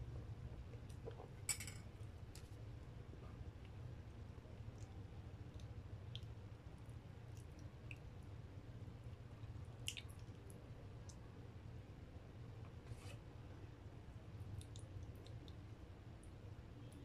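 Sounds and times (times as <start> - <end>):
steady low hum: 0.0 - 17.0
person chewing with mouth clicks: 9.4 - 10.3.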